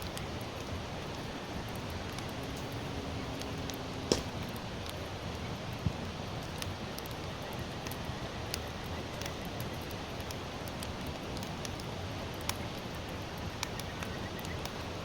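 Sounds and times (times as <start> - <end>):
fire crackles and pops: 0.0 - 15.0
wood fire hissing: 0.0 - 15.0.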